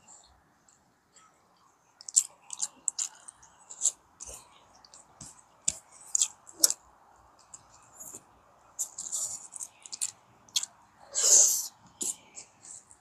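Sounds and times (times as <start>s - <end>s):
wet chewing: 2.0s - 6.8s, 8.8s - 12.6s.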